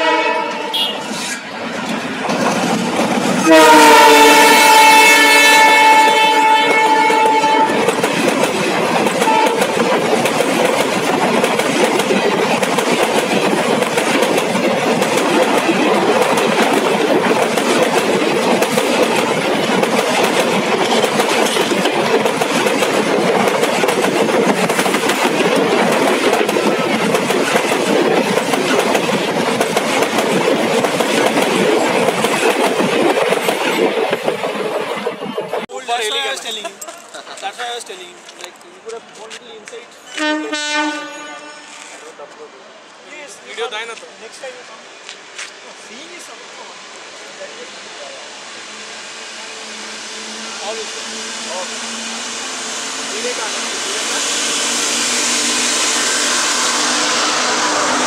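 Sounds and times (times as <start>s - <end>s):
train horn: 0.0s - 1.2s, 3.4s - 7.9s, 9.2s - 9.7s, 40.1s - 42.1s, 54.6s - 58.0s
train wheels clattering: 0.5s - 40.3s.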